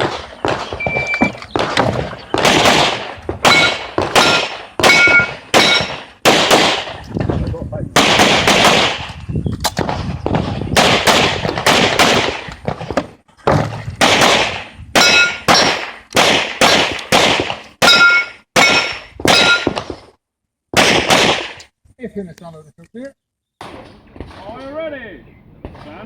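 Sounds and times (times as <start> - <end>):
rapid handgun shots: 0.0 - 7.0, 8.0 - 9.1, 9.8 - 13.0, 14.0 - 20.0, 20.8 - 21.6
steel targets ringing: 3.4 - 6.0, 15.0 - 15.7, 17.8 - 19.7.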